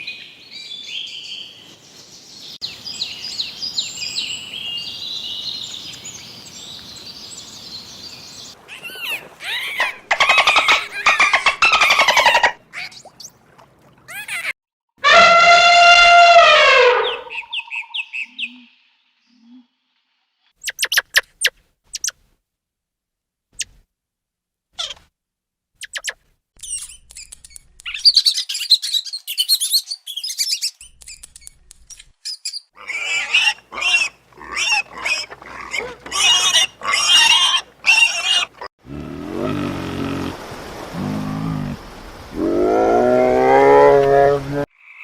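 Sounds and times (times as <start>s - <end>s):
quick repeated animal cries: 8.7s - 12.9s, 32.8s - 38.7s
drawn-out animal call: 32.8s - 41.8s.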